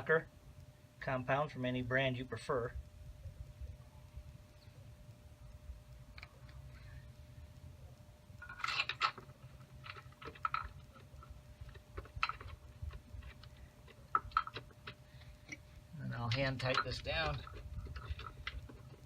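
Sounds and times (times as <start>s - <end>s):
steady low hum: 0.0s - 19.0s
small metal parts clicking: 8.4s - 19.0s.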